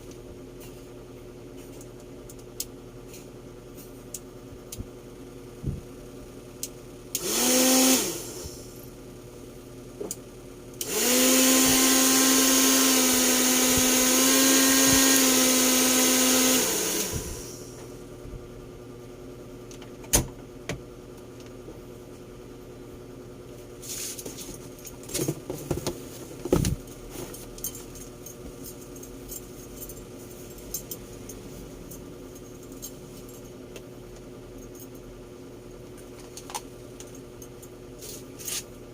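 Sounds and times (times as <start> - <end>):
hair dryer running: 7.2 - 8.8, 10.8 - 17.9.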